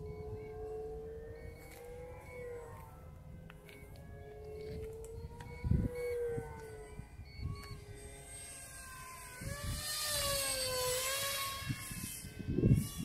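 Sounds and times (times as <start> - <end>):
model jet motor whine: 0.0 - 13.0
wind buffeting microphone: 4.4 - 13.0.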